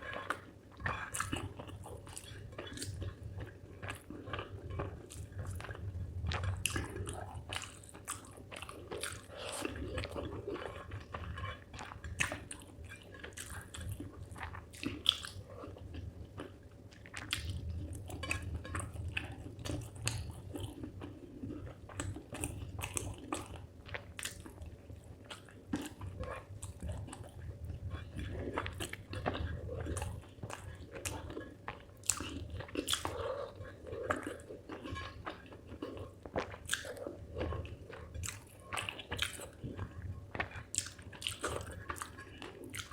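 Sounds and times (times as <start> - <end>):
person chewing and biting: 25.2 - 42.9.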